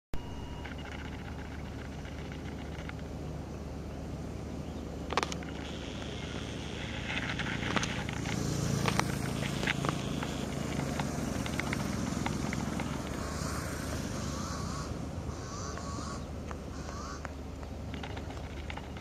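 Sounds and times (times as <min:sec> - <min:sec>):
bird calls: 0:00.2 - 0:19.0
low outdoor rumble: 0:00.2 - 0:19.0.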